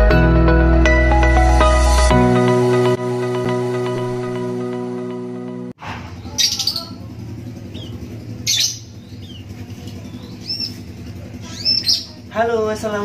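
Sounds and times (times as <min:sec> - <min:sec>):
high bird chirps: 0:06.2 - 0:07.0, 0:07.6 - 0:12.3
young bird squawking: 0:06.2 - 0:07.0, 0:07.7 - 0:09.5, 0:10.1 - 0:12.2.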